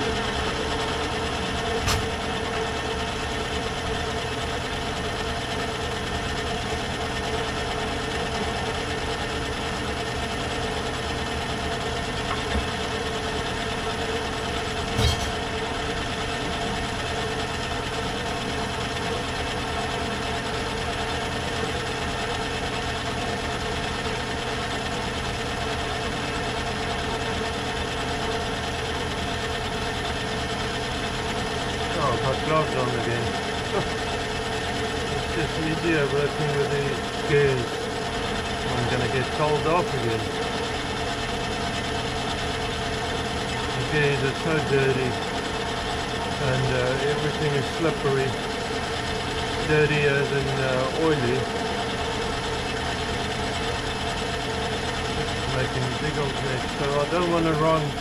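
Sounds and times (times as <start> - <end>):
gear train humming: 0.0 - 8.7
lathe running: 0.0 - 58.0.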